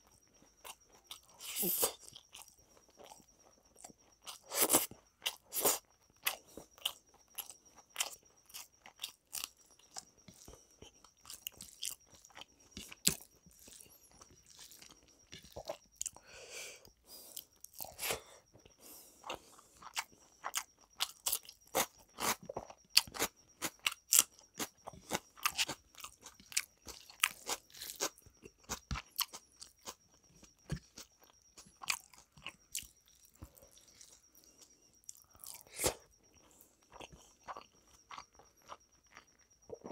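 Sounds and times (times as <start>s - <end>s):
man chewing food: 0.0s - 39.9s.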